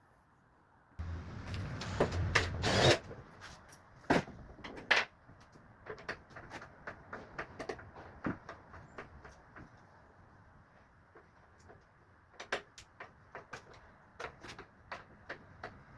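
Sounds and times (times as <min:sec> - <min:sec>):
low hum: 0:01.0 - 0:02.9.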